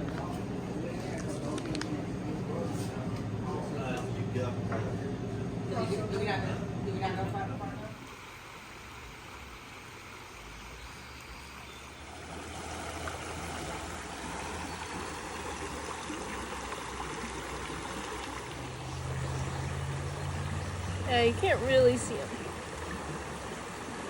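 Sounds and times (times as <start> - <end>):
water rushing: 5.2 - 24.0.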